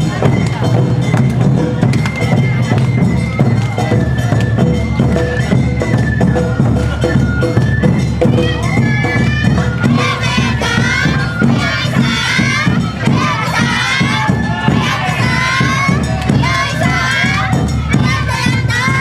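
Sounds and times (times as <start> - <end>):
bamboo flute melody: 0.0 - 19.0
drums beating: 0.0 - 19.0
many voices shouting: 8.5 - 19.0.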